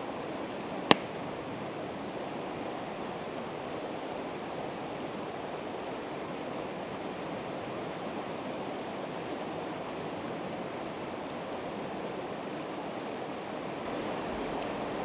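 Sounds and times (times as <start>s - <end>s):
campfire crackles: 0.1s - 8.2s, 13.8s - 15.0s
river rushing: 13.8s - 15.0s.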